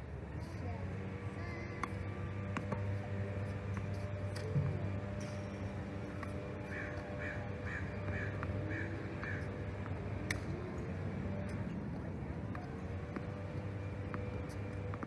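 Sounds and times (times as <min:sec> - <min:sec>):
bird calling: 0:06.7 - 0:09.5.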